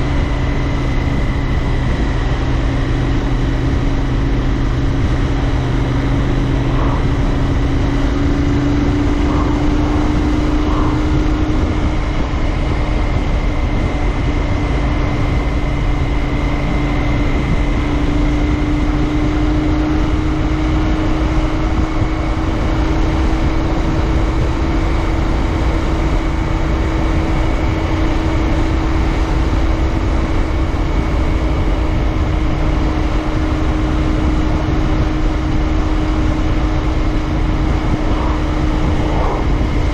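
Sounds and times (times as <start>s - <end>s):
low rumble: 0.0s - 39.9s
motorcycle engine cruising: 0.0s - 39.9s.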